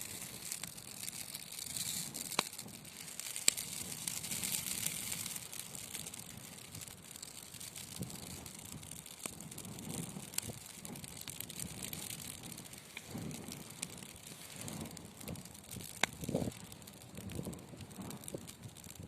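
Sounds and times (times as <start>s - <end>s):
fire crackles and pops: 0.0s - 19.0s
wood fire hissing and rumbling: 0.0s - 19.0s.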